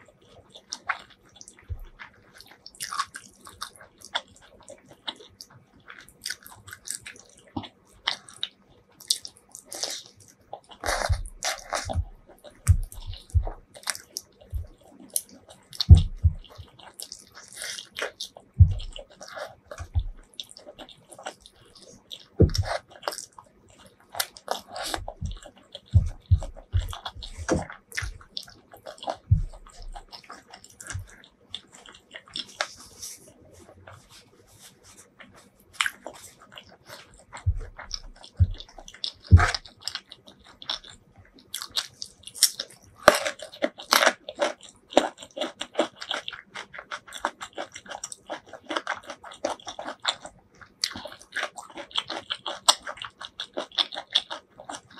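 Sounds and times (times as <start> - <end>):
crunching food: 0.0 - 54.9
wet chewing and lip smacks: 0.0 - 54.9.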